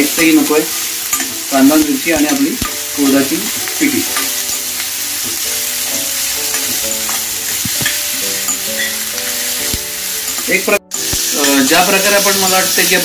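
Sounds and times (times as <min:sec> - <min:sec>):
onion sizzling in hot oil: 0:00.0 - 0:13.0
steel spoon clicking against pan: 0:01.0 - 0:02.9, 0:06.5 - 0:12.9.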